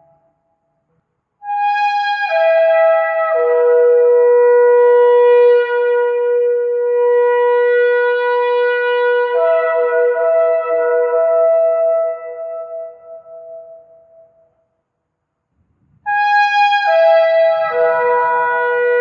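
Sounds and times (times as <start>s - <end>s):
shofar blast: 16.0s - 19.0s.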